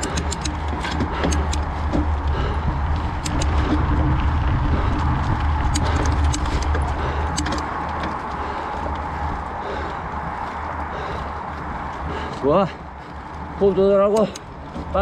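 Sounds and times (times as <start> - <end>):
sharp clicks and clatters: 0.0 - 9.1, 13.9 - 14.6
mountain bike rattling on dirt trail: 0.0 - 15.0
wind buffeting microphone: 0.0 - 15.0.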